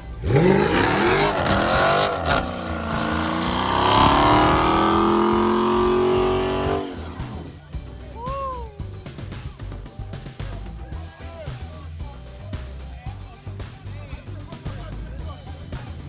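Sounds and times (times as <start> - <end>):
tyres squealing: 0.2 - 7.5
car engine revving hard: 0.2 - 7.6.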